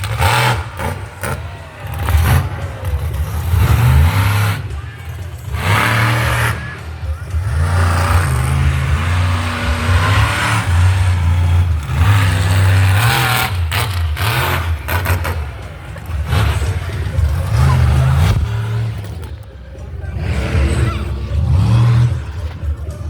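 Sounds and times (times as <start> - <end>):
engine revving: 0.0 - 23.0.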